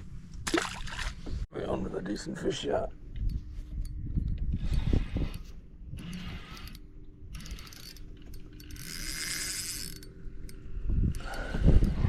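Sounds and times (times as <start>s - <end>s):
fishing reel ratcheting: 4.6s - 12.0s.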